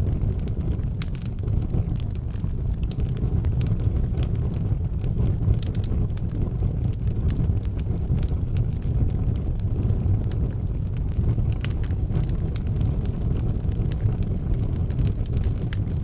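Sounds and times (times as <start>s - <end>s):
fire crackling and popping: 0.0s - 16.0s.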